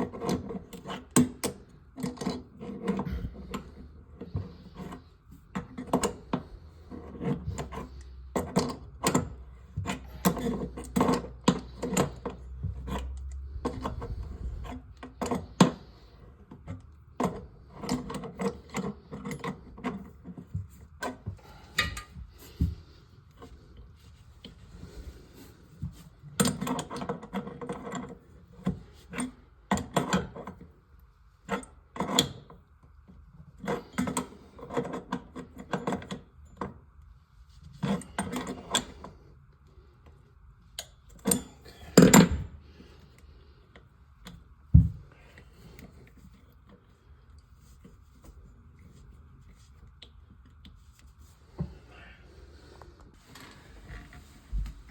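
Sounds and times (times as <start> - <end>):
hard parts clicking and knocking: 0.0 - 23.4, 40.8 - 42.7.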